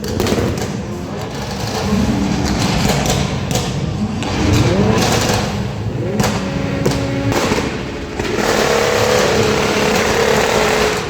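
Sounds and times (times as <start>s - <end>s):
car engines revving hard: 0.0s - 11.0s
sharp cracks: 0.0s - 11.0s.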